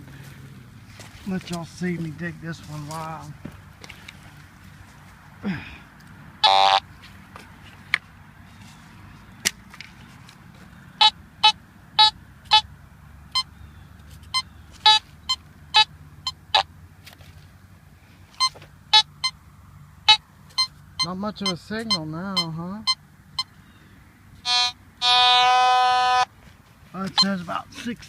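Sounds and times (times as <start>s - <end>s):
metal detector beeping: 6.4s - 6.8s, 11.0s - 12.7s, 14.3s - 16.7s, 18.4s - 19.4s, 20.1s - 23.6s, 24.4s - 26.3s, 27.0s - 27.6s.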